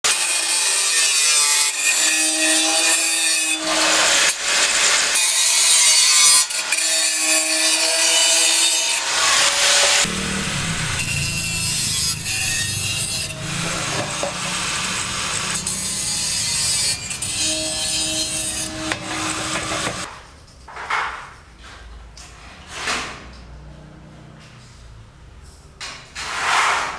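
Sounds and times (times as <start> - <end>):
wood being sawn and rasped: 6.7 - 20.1
low heavy sound: 10.1 - 20.1.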